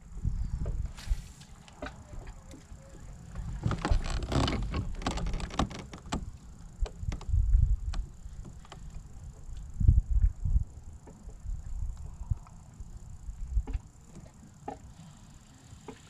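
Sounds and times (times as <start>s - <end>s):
steady low rumble: 0.0s - 5.0s, 6.0s - 14.1s
gear knocking on kayak: 3.4s - 9.4s.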